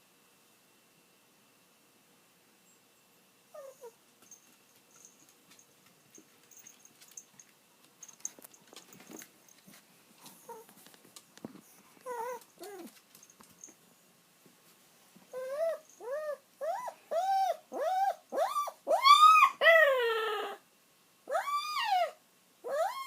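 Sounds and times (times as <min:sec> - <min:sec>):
dog whimpering: 0:03.5 - 0:04.0, 0:10.4 - 0:10.7, 0:12.0 - 0:12.9, 0:15.3 - 0:20.6, 0:21.3 - 0:23.0.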